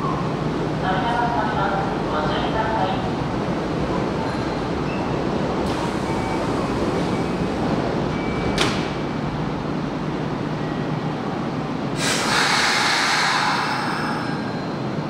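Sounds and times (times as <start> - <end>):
train low rumble: 0.0 - 15.0
loud hiss: 12.0 - 14.3.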